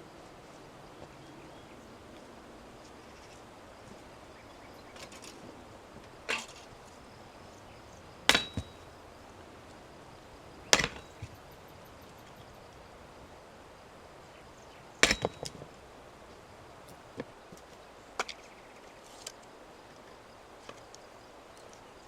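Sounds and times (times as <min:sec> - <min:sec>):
sharp knocks: 0:08.3 - 0:09.0, 0:10.7 - 0:11.4, 0:15.0 - 0:15.6.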